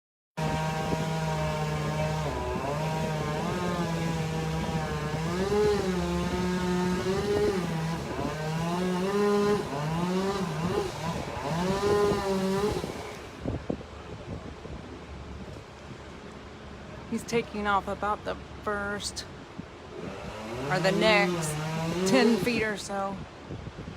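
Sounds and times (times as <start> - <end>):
chainsaw cutting wood: 0.4 - 13.5, 19.9 - 23.0.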